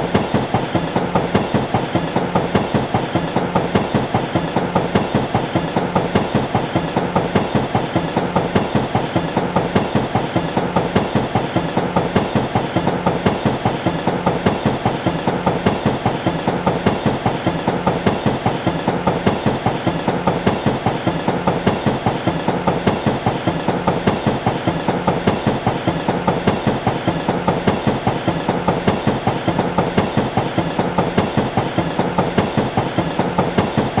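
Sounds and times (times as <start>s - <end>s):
train wheels clicking over rail joints: 0.0s - 34.0s.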